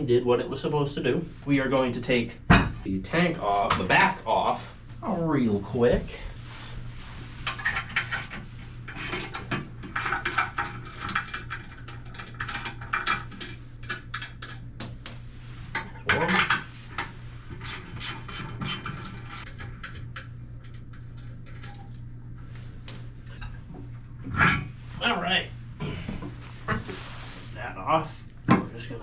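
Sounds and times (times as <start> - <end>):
steady low hum: 0.0 - 29.0
porcelain scraping and clattering: 7.4 - 14.6, 15.2 - 19.6
hand tools clicking and knocking: 9.1 - 16.7.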